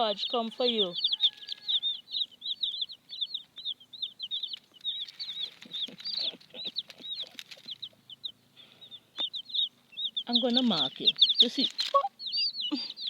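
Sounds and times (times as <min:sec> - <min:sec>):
baby chicks peeping: 0:00.0 - 0:13.0
rustling and light taps: 0:04.4 - 0:08.0.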